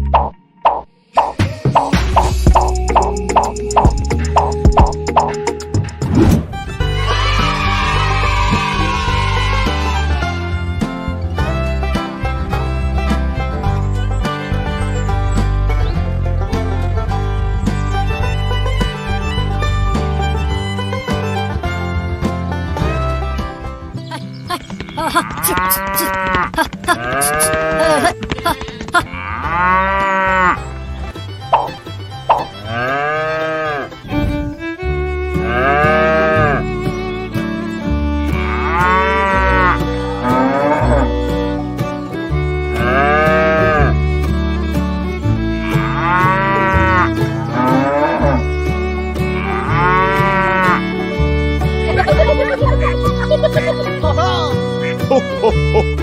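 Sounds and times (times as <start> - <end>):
background music with bass and beat: 1.2 - 7.4
cow mooing: 25.1 - 28.1, 29.1 - 30.6, 32.6 - 34.0, 35.4 - 36.6, 38.4 - 41.1, 42.8 - 43.9, 45.6 - 48.4, 49.4 - 50.9.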